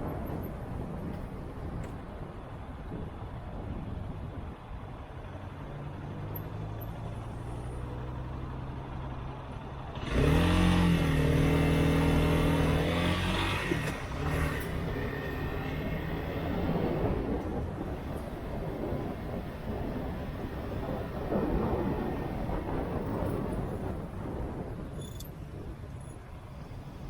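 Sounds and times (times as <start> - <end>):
motorcycle engine revving: 9.9 - 17.3.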